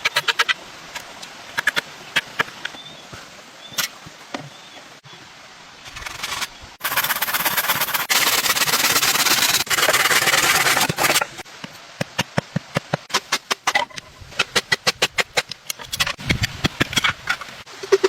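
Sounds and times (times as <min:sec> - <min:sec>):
rough scraping of wood: 0:05.9 - 0:11.4.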